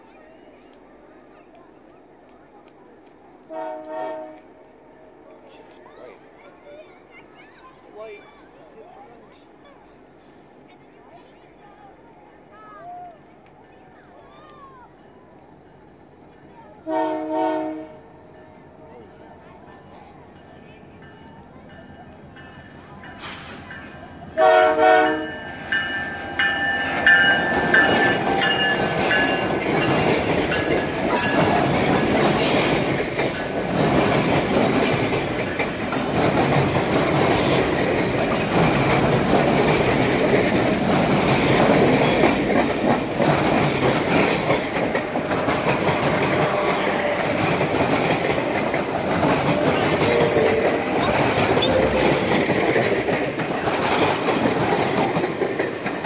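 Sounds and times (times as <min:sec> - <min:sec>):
train passing rumble: 0:00.2 - 0:12.6, 0:13.2 - 0:56.0
locomotive air horn blasts: 0:03.5 - 0:04.5, 0:16.8 - 0:18.2, 0:24.4 - 0:25.4
wheels clacking over rail joints: 0:25.4 - 0:56.0.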